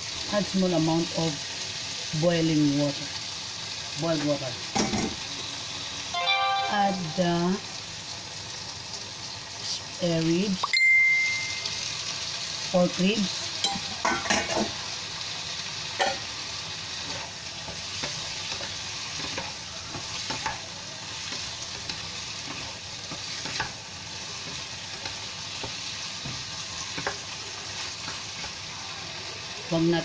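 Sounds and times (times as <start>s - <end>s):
food sizzling in a wok: 0.0s - 30.0s
spatula knocking and scraping pan: 17.0s - 27.4s.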